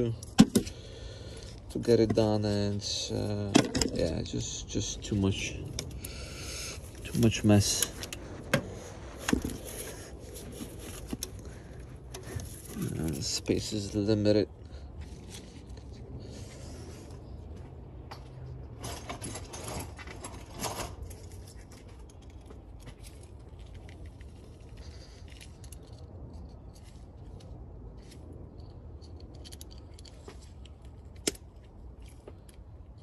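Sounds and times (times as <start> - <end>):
metal tools clinking and rattling: 18.7 - 27.4.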